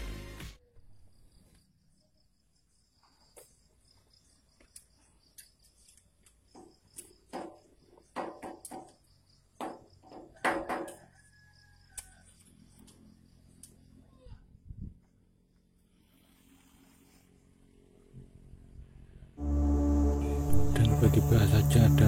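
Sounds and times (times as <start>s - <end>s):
faint high insect chirring: 0.6s - 14.4s.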